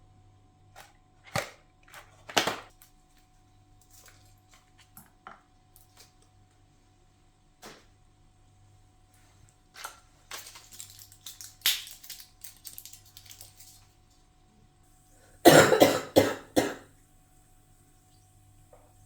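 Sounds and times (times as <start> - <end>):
objects clicking and rustling: 0.8 - 6.6, 9.5 - 14.2
person coughing harshly: 15.4 - 16.9.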